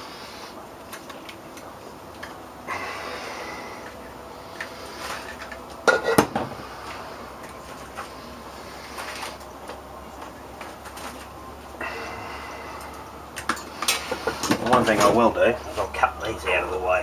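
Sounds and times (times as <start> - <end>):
metal tools clattering and scraping: 4.6 - 6.2.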